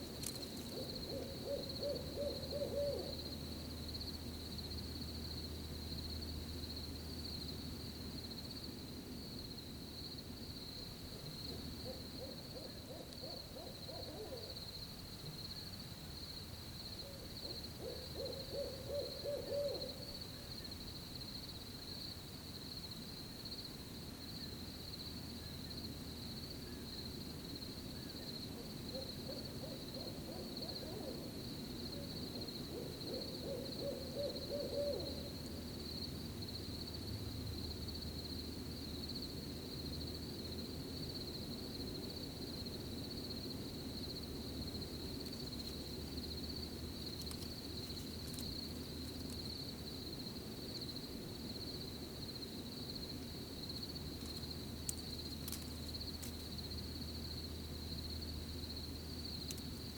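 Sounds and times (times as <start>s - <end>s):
crickets chirring: 0.0s - 59.9s
owl hooting: 0.7s - 3.3s, 11.5s - 14.6s, 17.0s - 20.5s, 28.0s - 31.4s, 32.0s - 35.4s.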